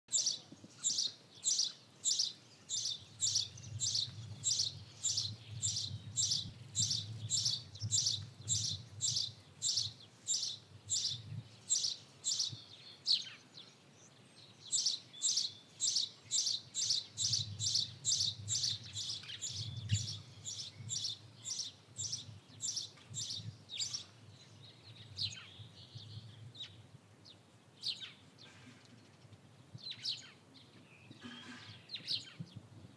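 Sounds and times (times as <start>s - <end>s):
small bird chirping: 0.1s - 24.1s.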